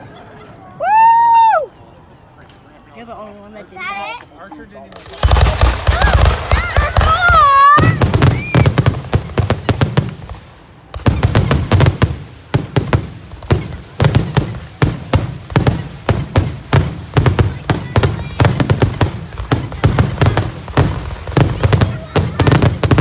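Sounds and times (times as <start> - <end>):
fireworks cracks and bangs: 4.8 - 23.0
firework whistle: 5.0 - 9.8.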